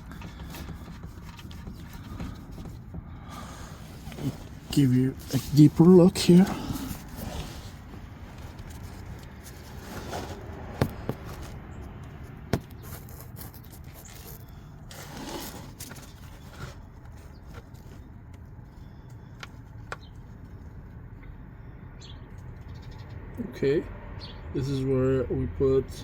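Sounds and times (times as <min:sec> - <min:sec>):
scraping and handling noises: 0:00.0 - 0:20.8.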